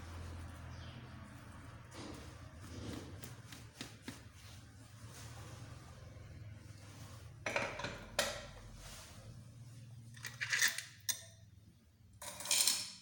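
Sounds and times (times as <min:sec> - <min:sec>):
metal parts clinking and clattering: 0:10.2 - 0:11.3, 0:12.2 - 0:13.0.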